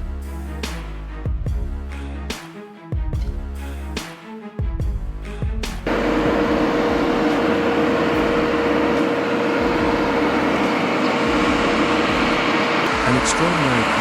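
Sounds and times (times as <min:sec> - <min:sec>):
heavy vehicle engine running: 0:05.9 - 0:14.0.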